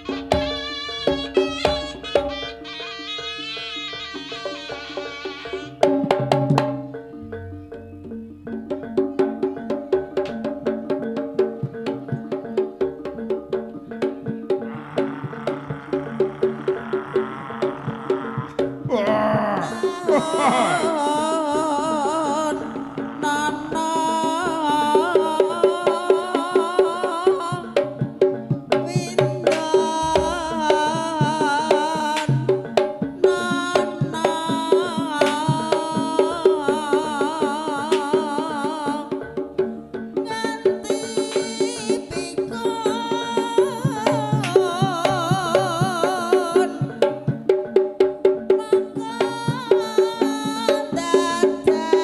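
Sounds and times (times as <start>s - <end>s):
reed horn melody: 0.0s - 5.7s
shrill shawm melody: 0.0s - 6.1s, 14.5s - 27.2s
hand drum strokes: 0.0s - 52.0s
repeating gamelan pattern: 0.0s - 52.0s.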